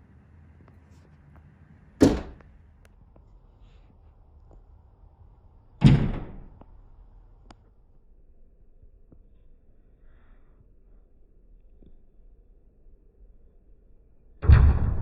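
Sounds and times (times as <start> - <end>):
loud sharp knocks: 2.0 - 2.4.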